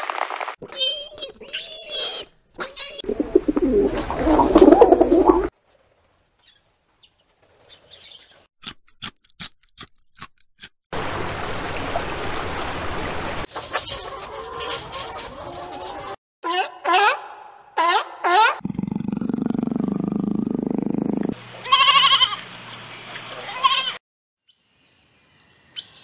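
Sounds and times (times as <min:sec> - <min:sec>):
hens clucking: 0:13.5 - 0:16.2.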